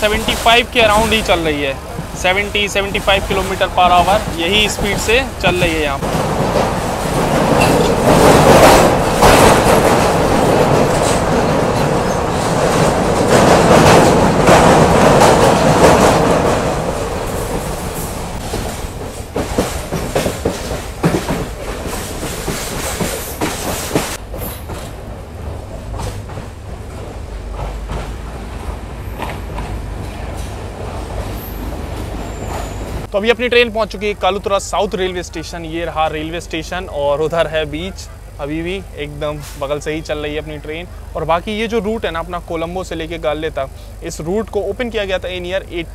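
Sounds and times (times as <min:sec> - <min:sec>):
train wheels clicking over rail joints: 0:00.0 - 0:33.1
train wheels on bridge rails: 0:00.0 - 0:33.1.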